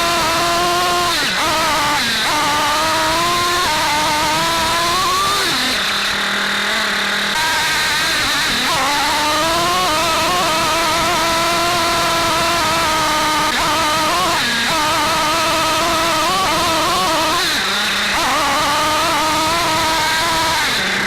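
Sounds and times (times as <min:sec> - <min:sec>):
model car nitro engine revving: 0:00.0 - 0:21.0.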